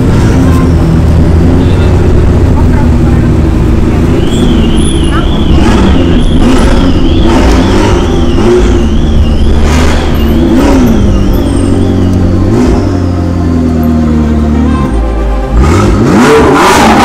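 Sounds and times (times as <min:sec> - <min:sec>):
sports car engines revving: 0:00.0 - 0:17.0
wavering high tone: 0:04.2 - 0:16.7.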